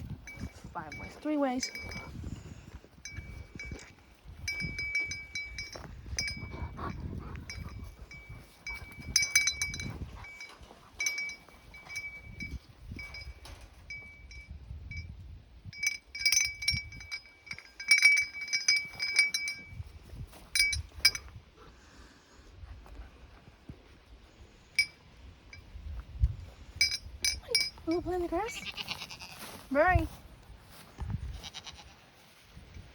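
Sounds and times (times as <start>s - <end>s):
metal dog tags jingling: 0.0s - 2.2s, 3.0s - 21.3s, 24.8s - 25.7s, 26.8s - 28.6s.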